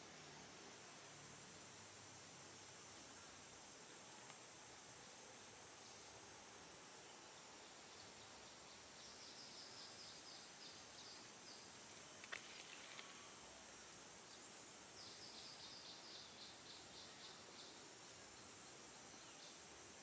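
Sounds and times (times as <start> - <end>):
faint hiss: 0.0 - 20.0
small bird singing: 15.0 - 19.6.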